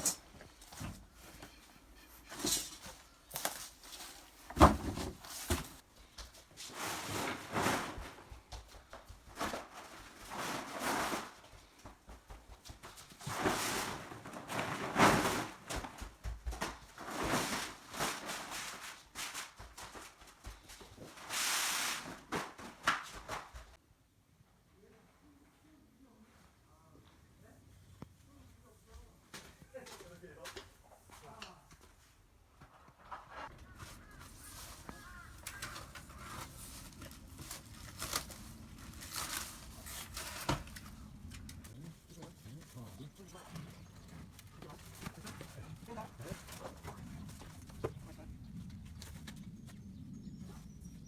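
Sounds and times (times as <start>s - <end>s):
hands scraping and rustling: 32.9s - 49.6s.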